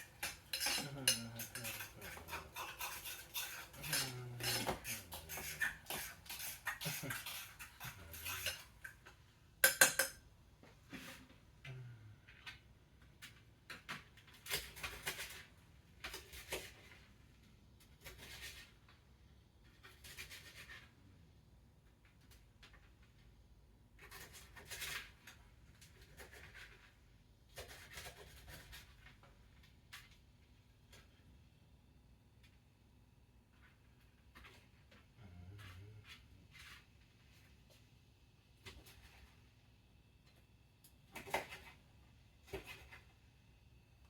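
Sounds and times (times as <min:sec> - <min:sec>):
cutlery and dishes clinking: 0:00.0 - 0:09.0, 0:09.6 - 0:10.2.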